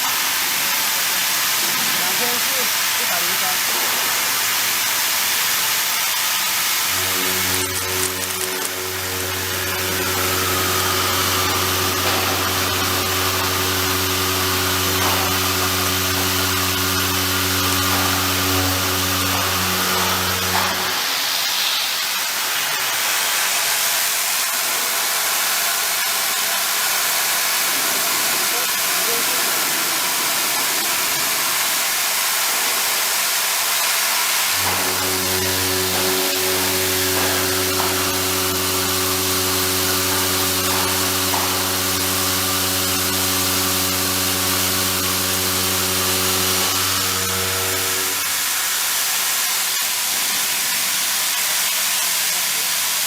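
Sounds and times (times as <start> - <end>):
milling machine humming: 0.0 - 50.2.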